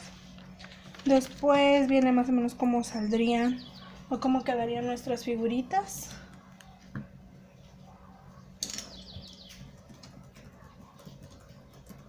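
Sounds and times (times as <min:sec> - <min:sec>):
bird chirping: 0:02.9 - 0:04.9, 0:08.8 - 0:09.9.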